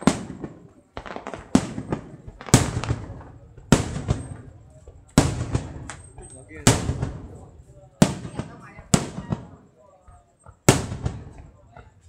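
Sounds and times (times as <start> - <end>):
firework shells bursting: 0.0 - 12.0.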